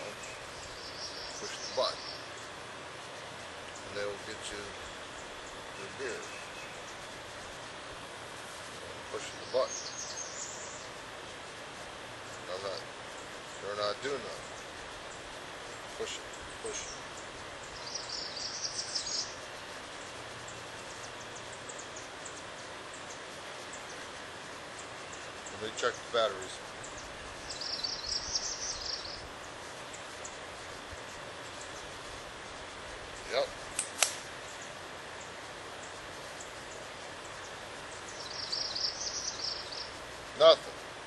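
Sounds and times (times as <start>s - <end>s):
steady background hiss: 0.0s - 41.0s
high bird chirps: 15.8s - 19.4s, 26.8s - 29.3s, 34.5s - 40.0s.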